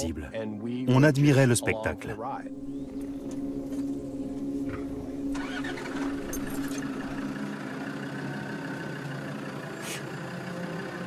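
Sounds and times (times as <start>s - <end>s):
vehicle engine idling: 2.5s - 11.0s.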